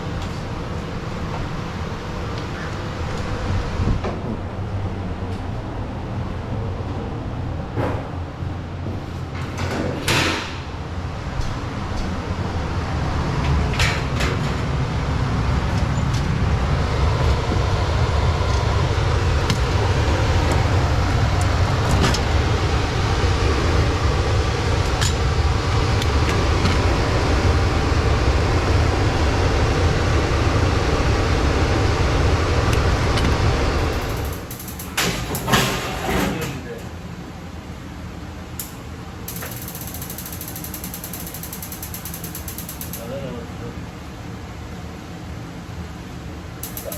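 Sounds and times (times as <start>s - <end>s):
air conditioning unit rumbling: 0.0s - 46.9s
clicks: 33.2s - 36.9s, 38.6s - 43.1s, 46.6s - 46.9s.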